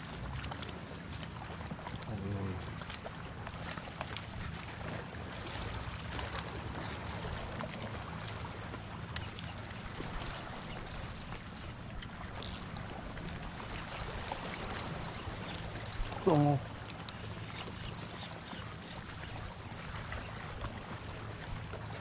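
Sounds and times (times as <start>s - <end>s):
insect chirring trill: 6.0s - 22.0s.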